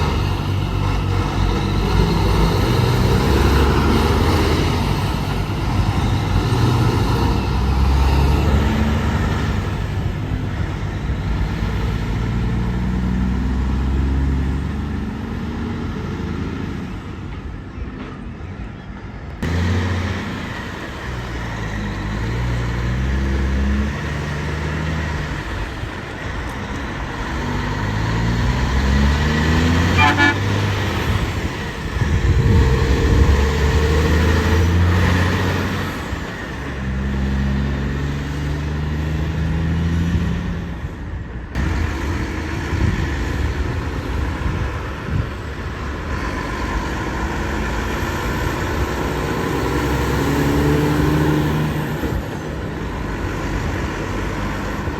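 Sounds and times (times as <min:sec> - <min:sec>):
trucks accelerating through gears: 0:00.0 - 0:17.6, 0:19.3 - 0:54.9
vehicle horn: 0:29.8 - 0:30.7.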